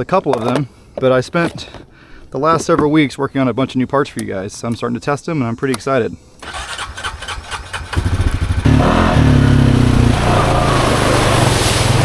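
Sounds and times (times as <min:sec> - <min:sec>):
atv engine revving: 0:06.4 - 0:12.0.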